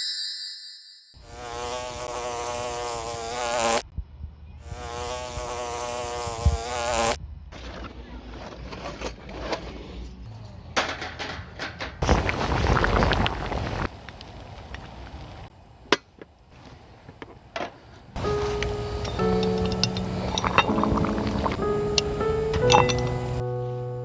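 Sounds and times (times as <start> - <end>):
insect-like buzzing: 1.2 - 3.9, 4.6 - 7.2, 18.2 - 23.4
scattered crackles and knocks: 10.8 - 15.2, 17.1 - 23.4.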